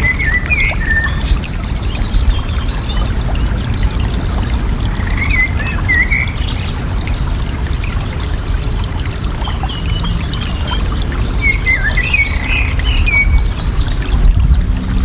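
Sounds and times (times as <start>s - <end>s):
water trickling and splashing: 0.0s - 15.0s
songbird warbling: 9.5s - 14.0s.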